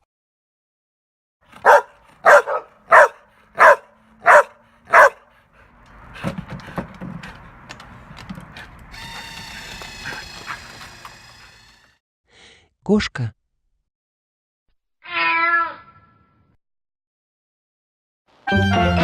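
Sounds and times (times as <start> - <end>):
dog barking: 1.6 - 5.3.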